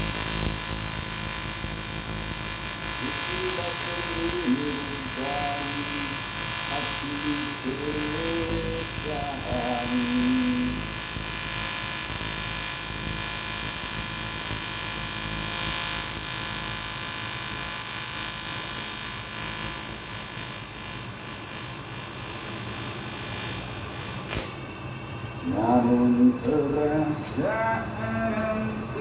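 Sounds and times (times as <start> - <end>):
welding arc buzzing: 0.0 - 29.0
welder click: 19.4 - 24.8.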